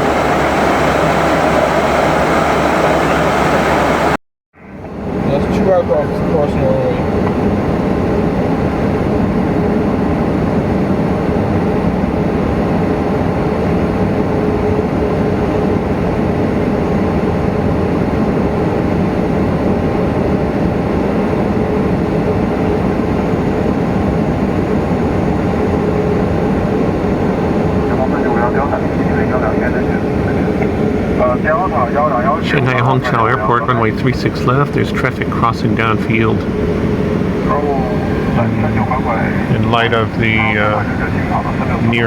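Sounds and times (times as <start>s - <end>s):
jet engines idling rumble: 0.0s - 17.0s, 20.2s - 42.0s
faint steady hum: 27.9s - 42.0s.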